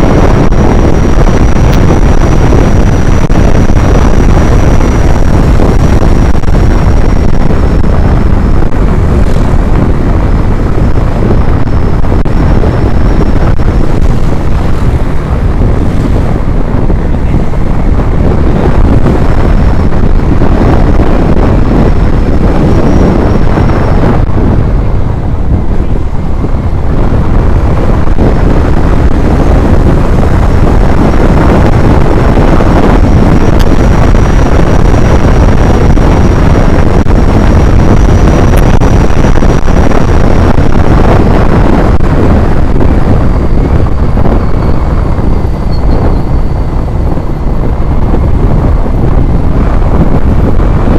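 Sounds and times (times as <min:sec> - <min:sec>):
wind buffeting microphone: 0:00.0 - 0:50.9
faint high whine: 0:41.9 - 0:48.7.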